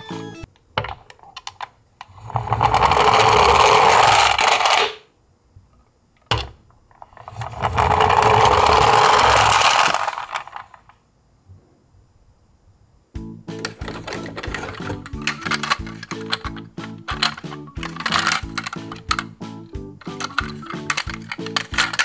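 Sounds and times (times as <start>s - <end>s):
toy truck mechanism whirring: 1.4s - 5.1s, 6.9s - 10.9s, 13.6s - 19.4s, 20.0s - 22.0s.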